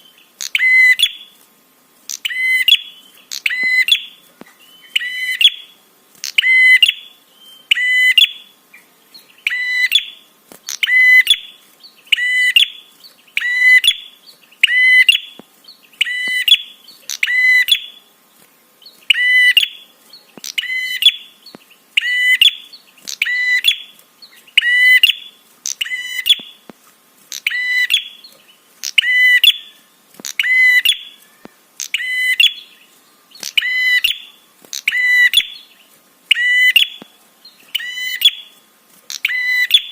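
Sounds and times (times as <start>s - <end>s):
sharp high bird chirp: 2.1s - 8.5s, 16.0s - 18.1s, 27.3s - 37.0s.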